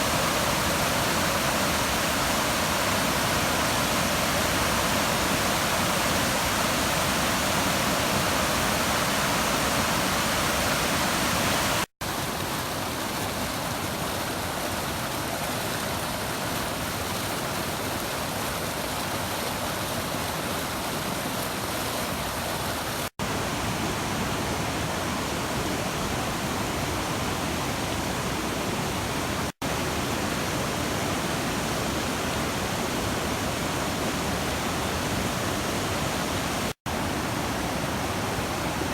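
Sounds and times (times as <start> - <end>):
rushing white water: 0.0 - 38.9.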